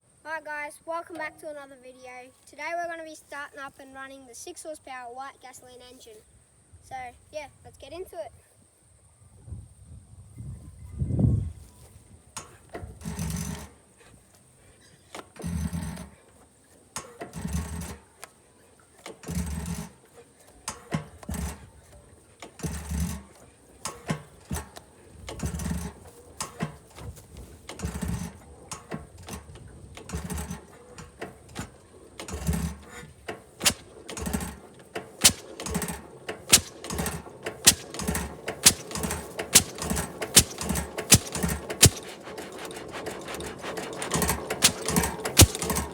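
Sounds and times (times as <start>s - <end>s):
small gasoline engine starting: 12.4s - 45.9s.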